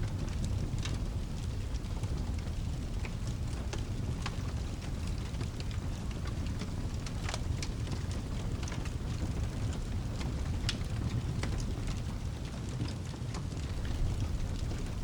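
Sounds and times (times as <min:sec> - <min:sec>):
fire crackling and popping: 0:00.0 - 0:15.0
low rumble: 0:13.7 - 0:15.0
rain hiss: 0:13.7 - 0:15.0.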